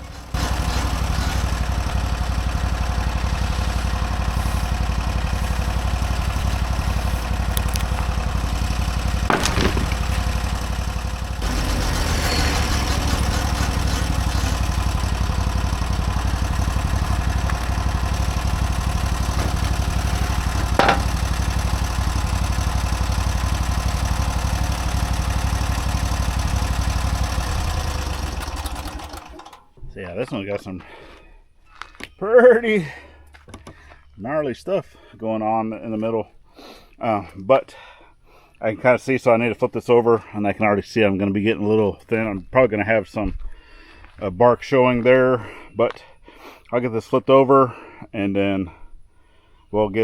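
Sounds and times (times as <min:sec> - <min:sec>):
gas engine running: 0:00.0 - 0:29.7
sharp knocks: 0:09.3 - 0:10.3, 0:19.3 - 0:21.3.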